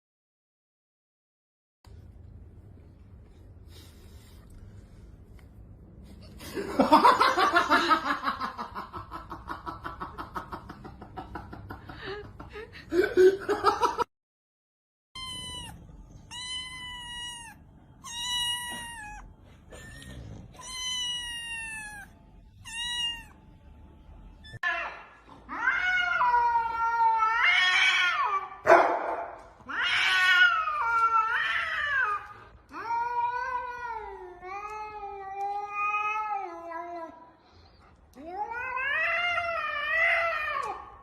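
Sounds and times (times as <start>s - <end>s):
cat meowing: 15.2s - 23.4s
cat yowling: 15.2s - 23.4s.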